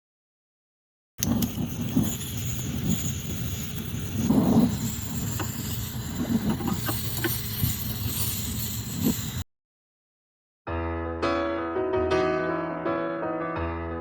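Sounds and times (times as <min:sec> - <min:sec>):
wind rumbling on microphone: 0:01.2 - 0:09.4.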